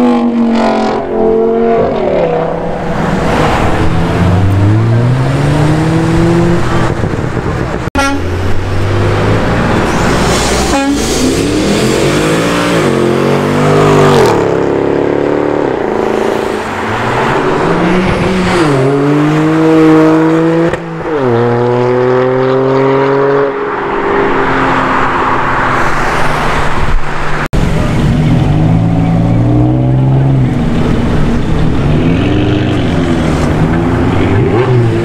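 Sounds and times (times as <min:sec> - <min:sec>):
car engine accelerating hard: 0:11.1 - 0:24.8.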